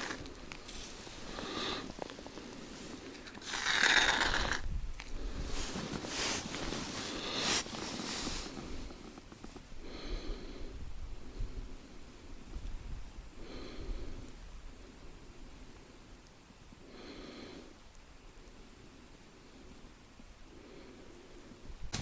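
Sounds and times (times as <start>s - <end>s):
short breaths through the nose: 0.0s - 9.2s
hissing rustle: 0.0s - 9.8s.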